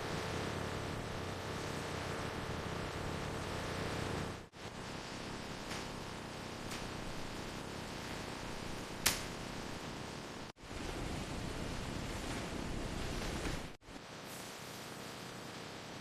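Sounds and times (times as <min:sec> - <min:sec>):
factory machinery hissing: 0:00.0 - 0:16.0
sharp click: 0:09.0 - 0:09.4.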